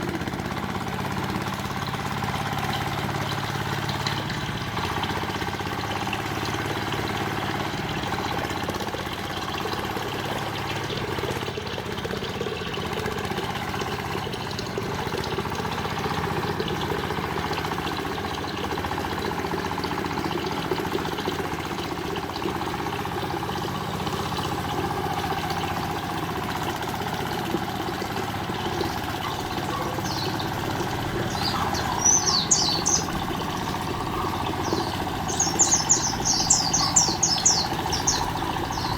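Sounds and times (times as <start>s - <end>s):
engine idling: 0.0s - 38.9s
bird chirps: 28.5s - 38.9s.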